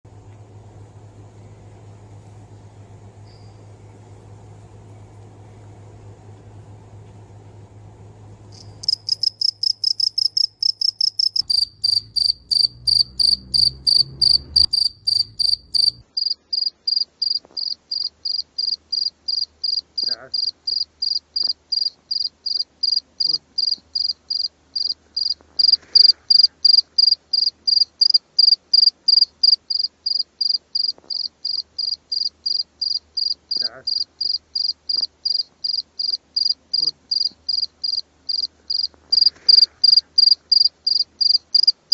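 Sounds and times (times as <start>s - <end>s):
cricket chirping: 8.5s - 41.8s.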